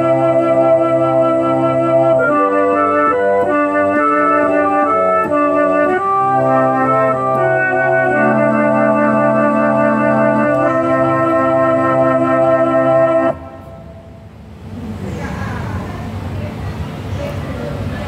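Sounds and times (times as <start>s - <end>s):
keyboard playing organ-like chords: 0.0s - 14.4s.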